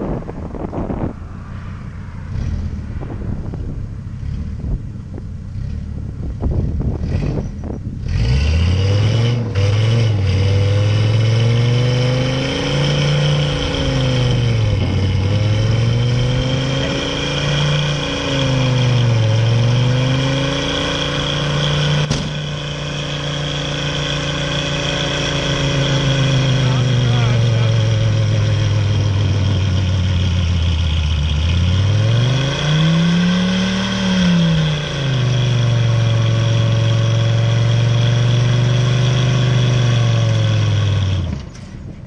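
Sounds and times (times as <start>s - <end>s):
car engine revving hard: 5.5s - 41.4s
sharp crack: 22.0s - 22.6s.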